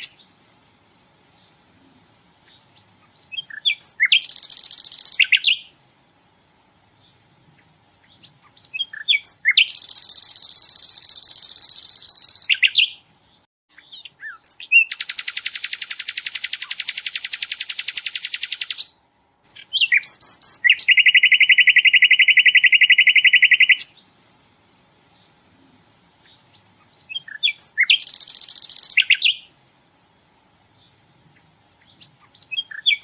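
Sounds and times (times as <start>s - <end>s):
bird trilling song: 0.0s - 0.3s, 2.4s - 5.8s, 7.0s - 24.0s, 26.2s - 29.6s, 30.7s - 33.0s
bird short chirps: 2.5s - 5.7s, 8.1s - 13.0s, 13.7s - 24.0s, 26.2s - 29.5s, 31.8s - 33.0s.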